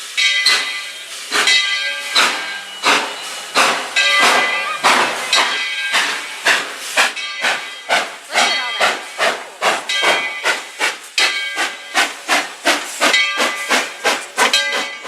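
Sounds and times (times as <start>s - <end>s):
steam hissing: 0.0s - 15.0s
steam locomotive chuffing: 0.0s - 15.0s.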